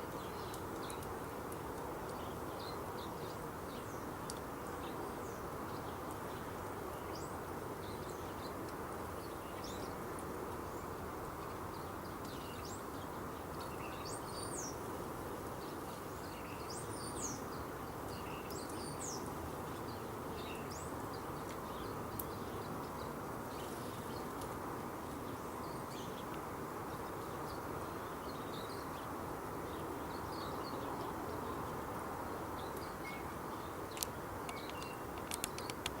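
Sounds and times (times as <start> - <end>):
small birds chirping: 0.0 - 36.0
steady background noise: 0.0 - 36.0
sharp clicks: 33.9 - 36.0.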